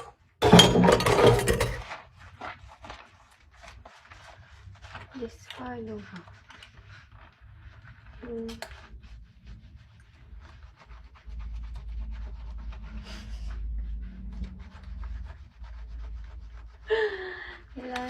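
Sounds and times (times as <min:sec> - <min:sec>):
dishes clinking and scraping: 0:00.0 - 0:01.9
dishes being washed by hand: 0:00.0 - 0:02.1.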